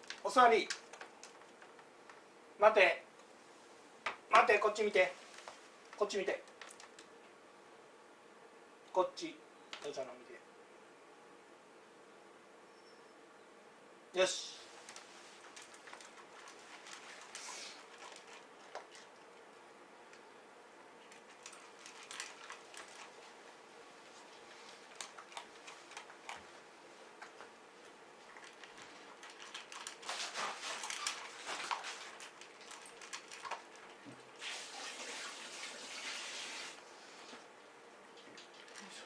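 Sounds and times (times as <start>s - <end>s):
dog crunching and licking food: 0.0s - 2.2s, 5.3s - 7.2s, 14.8s - 19.5s, 21.0s - 34.6s.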